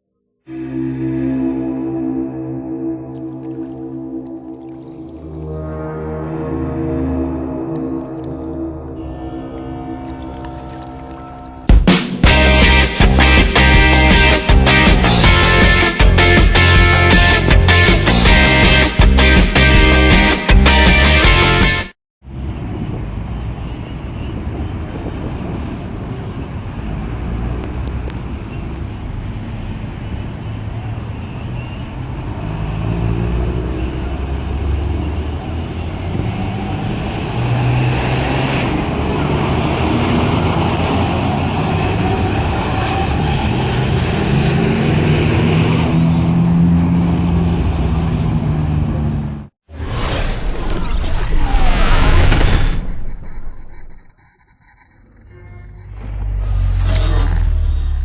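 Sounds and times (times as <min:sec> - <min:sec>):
road and traffic noise: 0:06.2 - 0:18.3, 0:22.2 - 0:49.6, 0:54.0 - 0:58.0
bus diesel engine running: 0:54.2 - 0:58.0.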